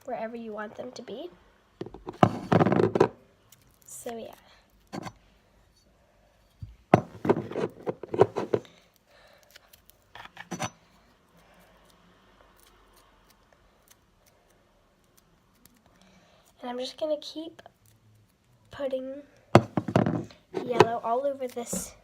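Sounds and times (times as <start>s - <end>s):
faint rubbing and handling: 5.7s - 8.8s, 19.6s - 22.0s.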